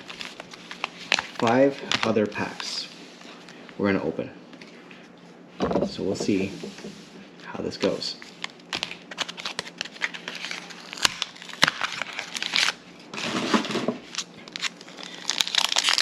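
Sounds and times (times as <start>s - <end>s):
plastic packaging crinkling: 0.0s - 2.8s, 8.3s - 16.0s.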